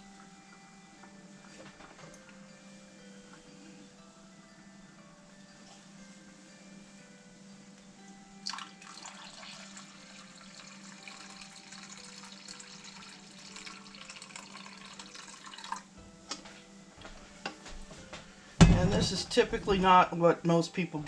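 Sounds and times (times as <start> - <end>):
soft background music: 0.0 - 21.0
milk splashing and trickling: 8.5 - 15.9.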